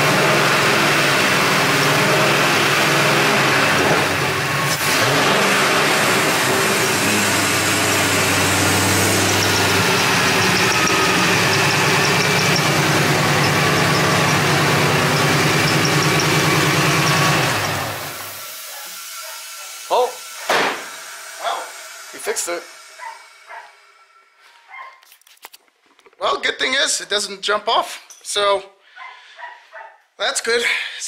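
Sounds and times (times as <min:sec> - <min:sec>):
car engine idling: 0:00.0 - 0:18.4
engine shutting off: 0:00.0 - 0:24.5.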